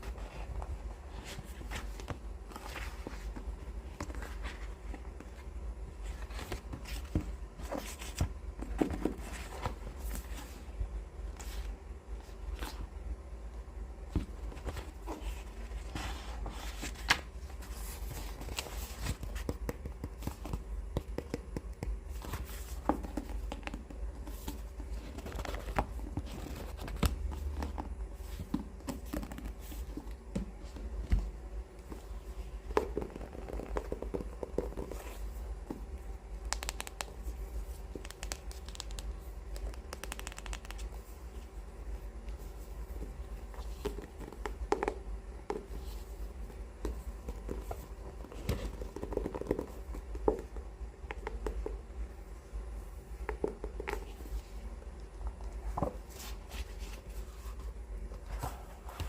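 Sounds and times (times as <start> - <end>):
scratching and rubbing on book covers: 0.0 - 12.9, 14.1 - 31.2, 31.9 - 35.9, 55.4 - 59.0.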